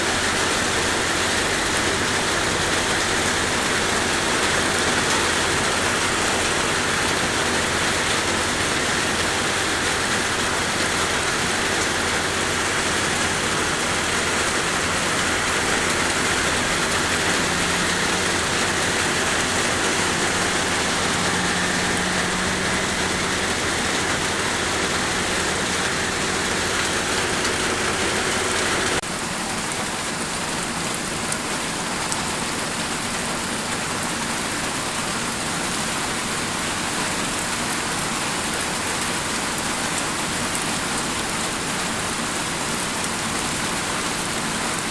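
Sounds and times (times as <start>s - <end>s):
heavy rain pattering: 0.0s - 44.9s.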